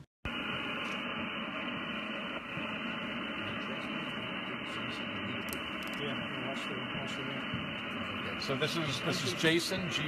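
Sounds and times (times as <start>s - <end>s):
radio band noise hiss: 0.0s - 10.0s.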